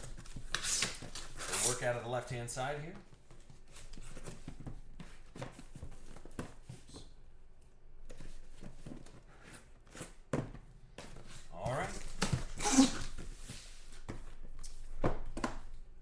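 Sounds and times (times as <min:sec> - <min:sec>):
cardboard and wrapper rustling: 0:00.0 - 0:02.0, 0:08.1 - 0:15.8.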